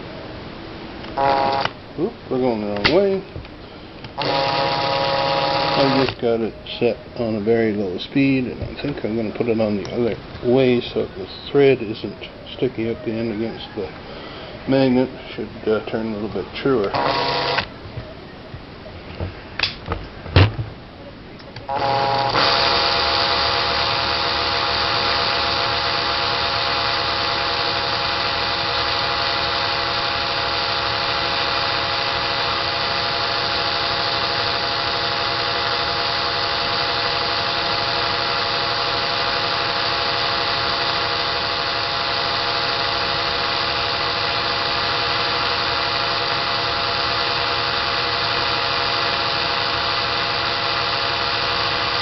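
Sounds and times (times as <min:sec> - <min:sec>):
cordless drill running: 0:01.0 - 0:01.8, 0:04.1 - 0:06.2, 0:16.8 - 0:17.7, 0:21.6 - 0:52.0.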